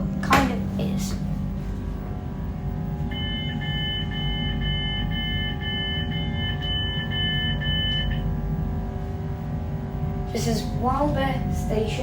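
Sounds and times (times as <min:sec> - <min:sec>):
train carriage hum: 0:00.0 - 0:12.0
train door warning beeps: 0:03.1 - 0:08.4.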